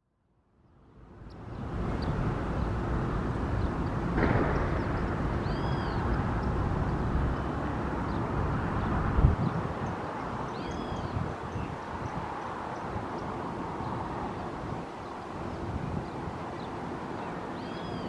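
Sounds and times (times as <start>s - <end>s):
jet engines rumbling: 1.4s - 17.7s
faint bird chirps: 4.9s - 6.6s, 10.5s - 11.7s, 17.2s - 18.0s.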